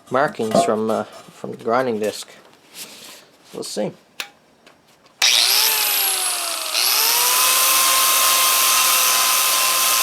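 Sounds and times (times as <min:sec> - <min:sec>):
angle grinder sanding metal: 0:05.2 - 0:10.0.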